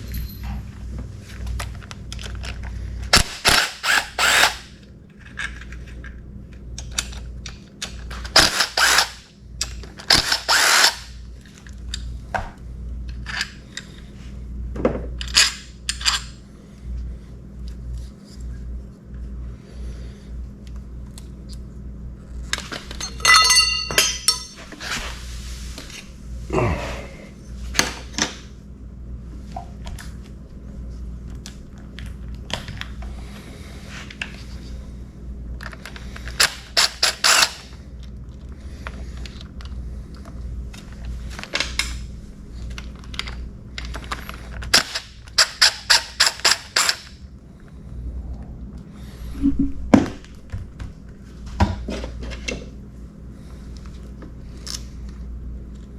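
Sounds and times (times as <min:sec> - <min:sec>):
metal clinks and knocks: 0:00.0 - 0:00.6, 0:23.0 - 0:24.7
steady low hum: 0:00.0 - 0:36.8, 0:37.6 - 0:45.4, 0:46.2 - 0:55.9.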